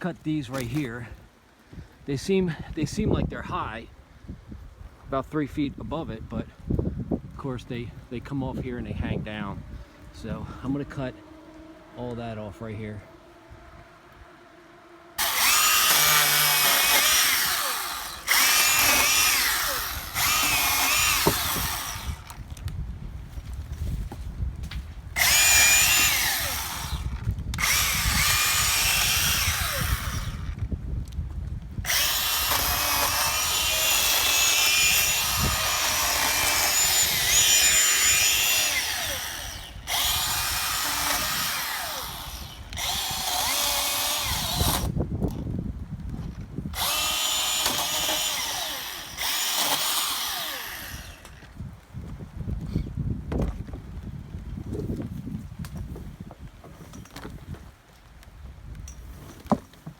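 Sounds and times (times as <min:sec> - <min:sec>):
chainsaw cutting branches: 0:00.4 - 0:00.9, 0:15.2 - 0:30.8, 0:31.8 - 0:45.4, 0:46.7 - 0:51.6.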